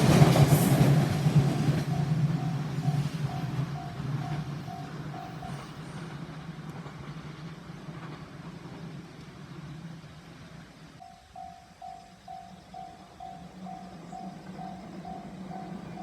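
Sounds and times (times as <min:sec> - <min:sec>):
electric train rumble: 0:00.0 - 0:16.0
level crossing warning bell: 0:01.3 - 0:05.8, 0:11.0 - 0:16.0.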